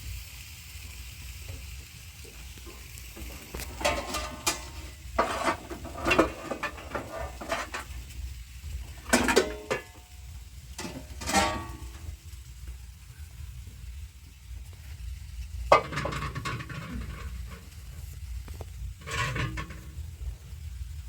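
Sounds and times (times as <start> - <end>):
metal pots and dishes clattering: 2.6 - 8.1, 8.9 - 10.2, 10.8 - 12.2, 15.7 - 17.8, 19.0 - 20.0
steady low rumble: 10.0 - 21.0.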